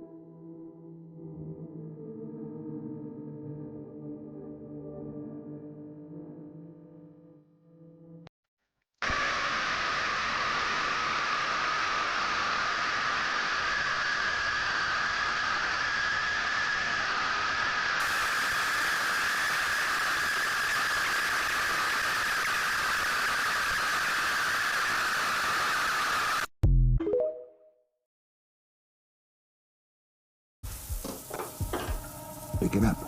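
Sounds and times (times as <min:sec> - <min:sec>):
steady hissing noise: 0:09.0 - 0:26.5, 0:30.6 - 0:33.0.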